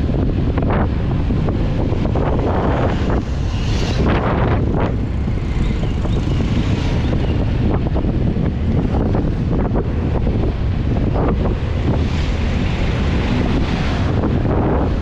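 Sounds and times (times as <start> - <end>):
road noise: 0.0 - 15.0
vehicle engine: 0.0 - 15.0
wind buffeting microphone: 0.0 - 15.0.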